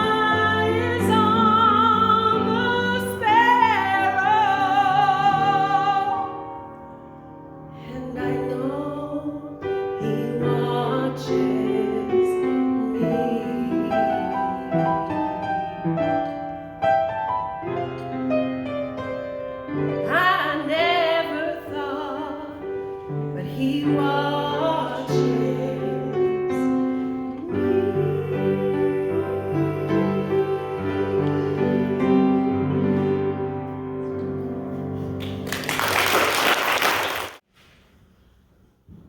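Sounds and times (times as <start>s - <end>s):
person singing with vibrato: 0.0s - 6.6s, 7.7s - 15.4s, 20.0s - 33.1s
piano accompaniment: 0.0s - 37.5s.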